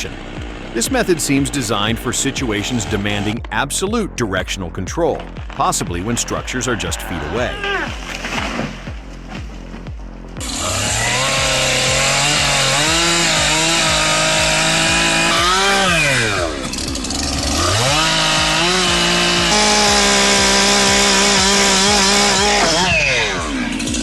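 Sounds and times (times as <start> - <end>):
chainsaw engine revving: 0.0 - 3.6, 10.4 - 24.0.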